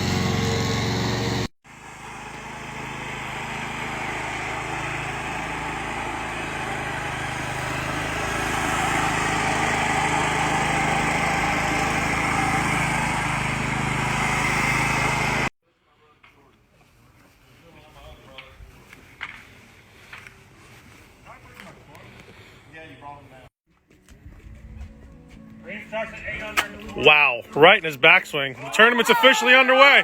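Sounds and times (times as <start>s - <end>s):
small engine running: 0.0s - 15.5s.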